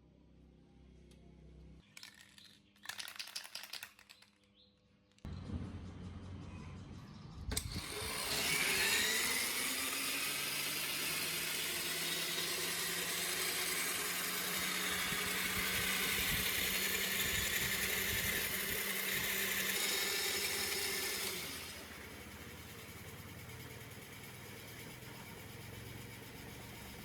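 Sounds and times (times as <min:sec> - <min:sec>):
electric motor whine: 0:07.5 - 0:27.0.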